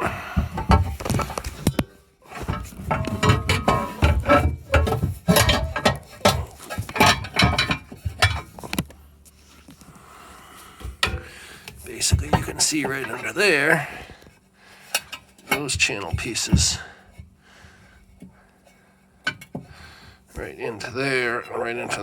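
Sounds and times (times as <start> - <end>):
metal pieces clanking and rattling: 2.4 - 8.8.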